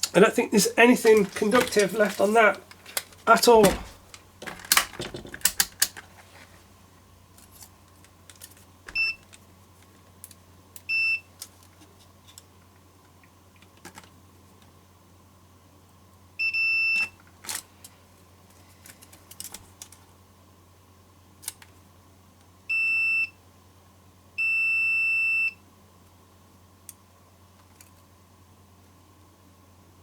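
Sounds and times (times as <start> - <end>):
multimeter beeps: 9.0 - 9.2, 16.4 - 17.1.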